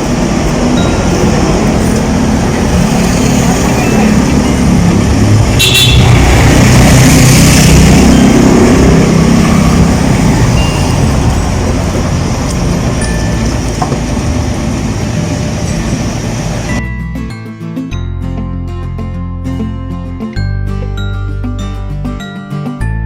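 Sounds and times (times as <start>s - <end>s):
truck passing close by: 0.0s - 16.8s.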